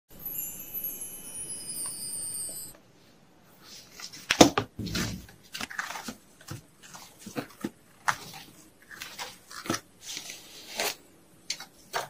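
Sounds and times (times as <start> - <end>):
high shimmering chime: 0.1 - 2.8
packaging rustling and clattering: 4.0 - 12.0.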